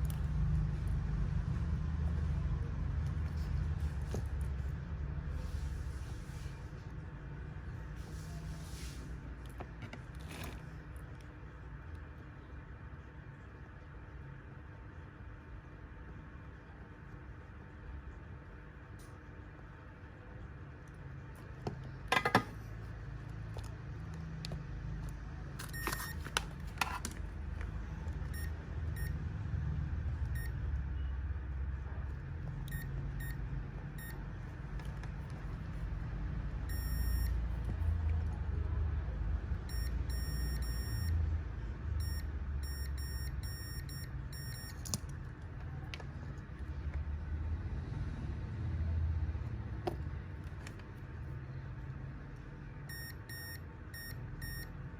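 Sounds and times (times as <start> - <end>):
short electronic beeps: 36.7 - 37.4, 42.0 - 44.8, 52.9 - 54.7.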